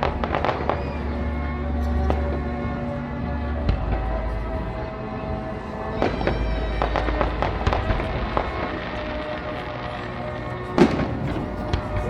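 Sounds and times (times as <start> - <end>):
music playing: 0.0 - 12.0
fireworks crackling bangs: 10.7 - 12.0.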